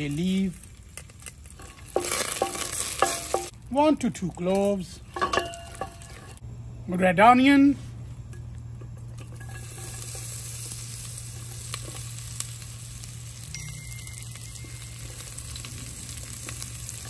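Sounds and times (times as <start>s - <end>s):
onion sizzling in butter: 0.0s - 6.4s, 8.4s - 17.0s
steady low hum: 4.9s - 17.0s.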